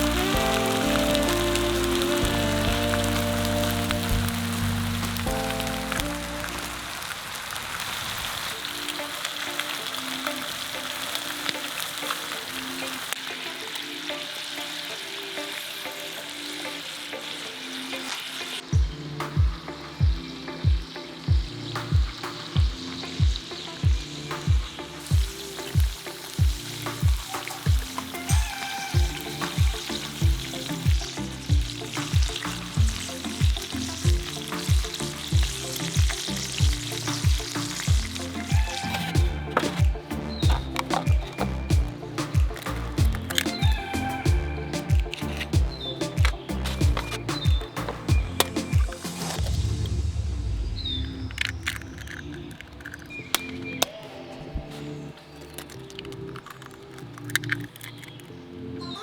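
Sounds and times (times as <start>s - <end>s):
background music with deep beat: 0.0s - 6.9s, 18.6s - 56.6s
faint melody: 0.0s - 7.4s
food sizzling in a pan: 0.0s - 18.7s, 22.4s - 49.8s.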